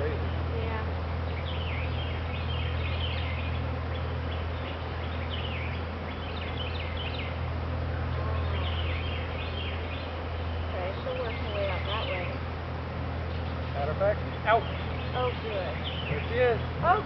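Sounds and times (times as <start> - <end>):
bird chirping: 0.0 - 17.0
steady low hum: 0.0 - 17.0.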